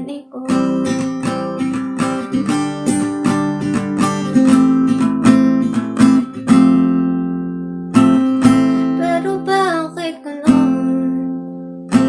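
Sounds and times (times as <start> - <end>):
acoustic guitar strumming: 0.5 - 12.0
person singing: 8.8 - 11.4.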